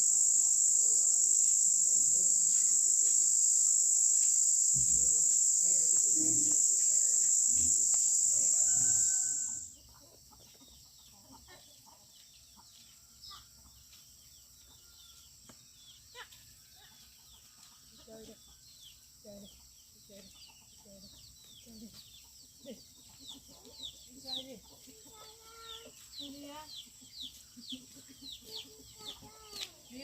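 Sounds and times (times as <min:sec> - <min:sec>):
high insect drone: 0:00.0 - 0:09.8.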